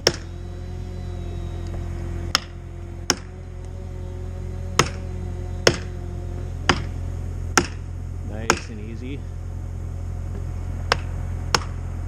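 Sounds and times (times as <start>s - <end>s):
tool striking felling wedges: 0.0s - 0.3s, 1.7s - 3.3s, 4.8s - 9.0s, 10.3s - 11.8s
steady low hum: 0.0s - 12.0s.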